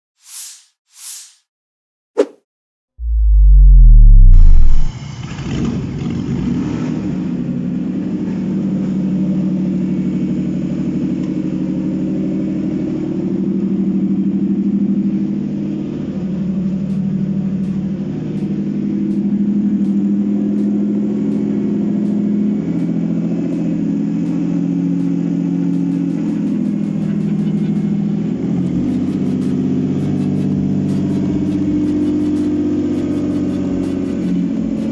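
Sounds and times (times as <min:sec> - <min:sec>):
engine running steadily: 0:14.5 - 0:34.9.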